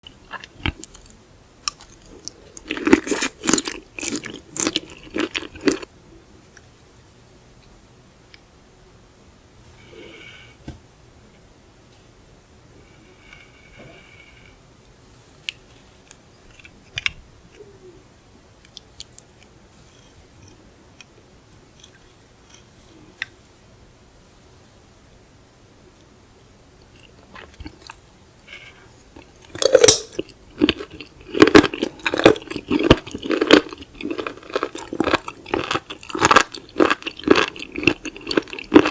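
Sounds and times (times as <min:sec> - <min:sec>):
chewing and biting seafood: 0:01.7 - 0:05.8, 0:29.2 - 0:38.9.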